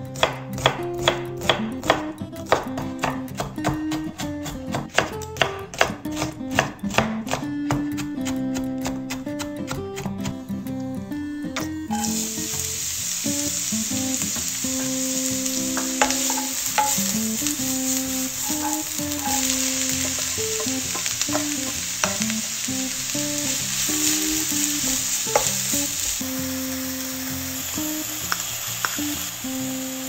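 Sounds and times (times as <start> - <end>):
acoustic guitar music: 0.0 - 30.0
vegetables sizzling in oil: 11.9 - 30.0.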